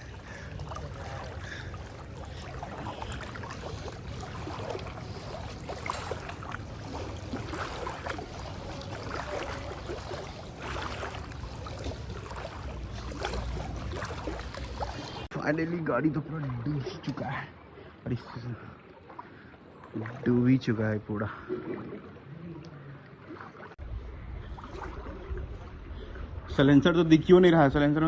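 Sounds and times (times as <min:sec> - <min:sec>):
floodwater sloshing and splashing: 0:00.0 - 0:28.0
small water splashes: 0:00.0 - 0:28.0.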